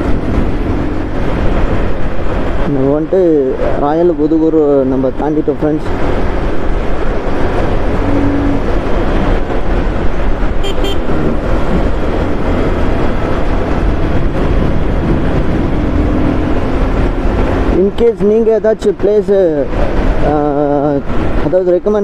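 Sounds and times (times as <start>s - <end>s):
road and wind noise: 0.0s - 22.0s
short high horn beeps: 10.6s - 11.1s.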